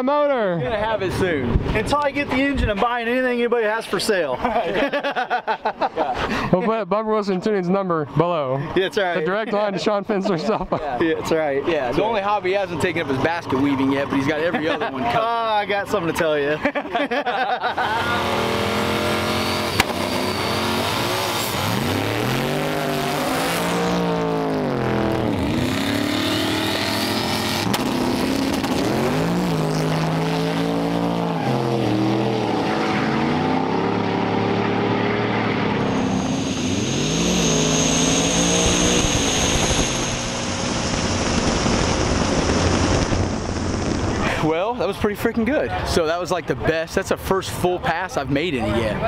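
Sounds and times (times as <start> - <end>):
drag racing engines revving: 11.1 - 16.8, 17.6 - 46.5.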